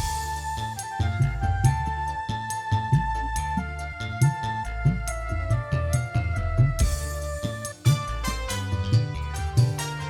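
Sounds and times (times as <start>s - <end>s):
low drum strokes: 0.0s - 1.7s
held high melody note: 0.0s - 10.0s.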